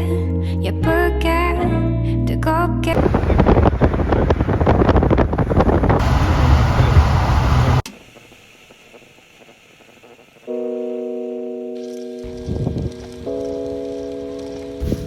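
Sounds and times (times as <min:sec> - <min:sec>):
wind buffeting microphone: 0:02.9 - 0:07.8, 0:12.3 - 0:13.2.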